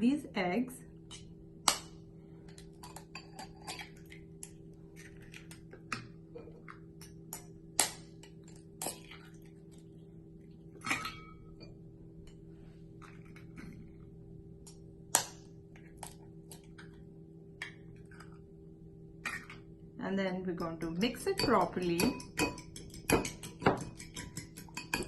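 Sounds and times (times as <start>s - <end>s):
eggs tapped against bowl: 21.3s - 25.0s.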